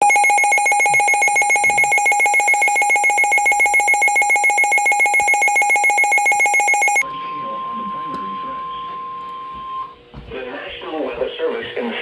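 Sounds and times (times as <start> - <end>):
electronic alarm beep pulsing rapidly: 0.0 - 7.0.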